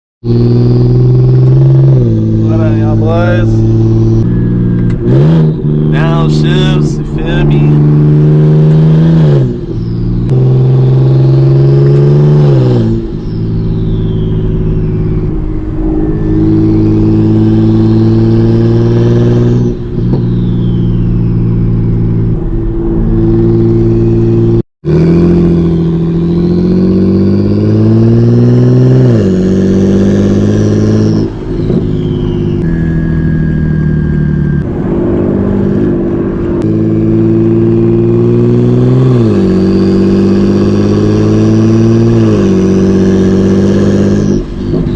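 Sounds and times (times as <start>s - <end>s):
car engine accelerating through gears: 0.2s - 44.9s
turbo whistle: 11.4s - 24.6s, 30.3s - 34.8s, 39.0s - 44.9s.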